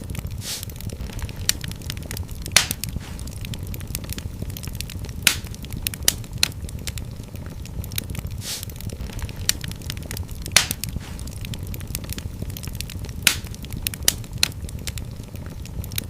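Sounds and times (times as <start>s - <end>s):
low rumble of flame: 0.0s - 16.0s
wood fire crackling and popping: 0.0s - 16.0s.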